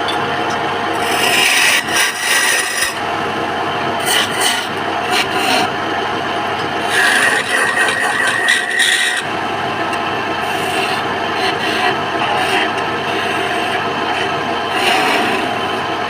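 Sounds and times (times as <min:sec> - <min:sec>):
cutting tool scraping spinning wood: 0:00.9 - 0:03.0, 0:04.0 - 0:05.8, 0:06.6 - 0:09.3, 0:10.4 - 0:15.9.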